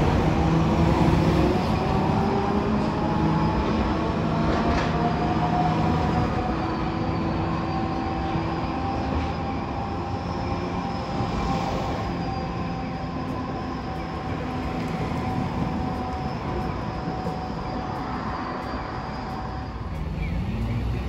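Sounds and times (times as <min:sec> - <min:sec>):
tram motors humming: 0:00.0 - 0:21.0
faint high wheel squeal: 0:05.0 - 0:21.0.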